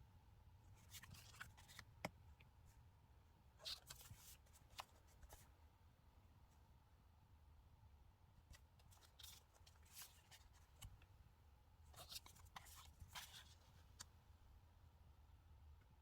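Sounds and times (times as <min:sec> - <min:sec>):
low steady hum: 0:00.0 - 0:16.0
paper and sticker rustling: 0:08.8 - 0:10.9, 0:12.0 - 0:14.1.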